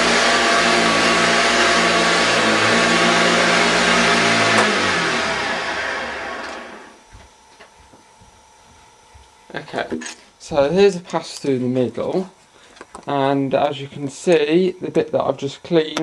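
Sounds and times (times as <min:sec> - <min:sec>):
upright vacuum cleaner running: 0:00.0 - 0:07.6.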